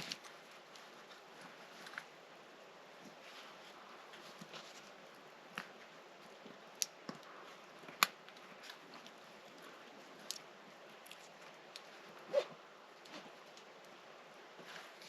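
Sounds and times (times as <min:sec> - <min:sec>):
faint steady hiss: 0:00.0 - 0:15.0
sharp clicks and snaps: 0:06.7 - 0:07.3.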